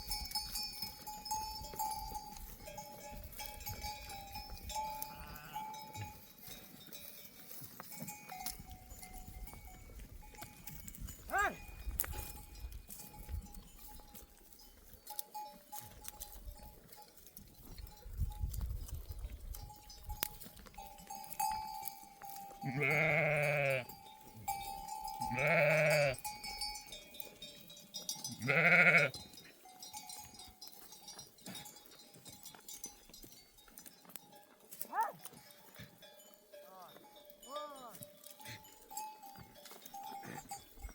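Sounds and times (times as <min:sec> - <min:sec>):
jingling sheep bells: 0:00.0 - 0:40.9
sheep bleating: 0:04.9 - 0:05.8, 0:22.6 - 0:23.9, 0:25.2 - 0:26.2, 0:28.3 - 0:29.2.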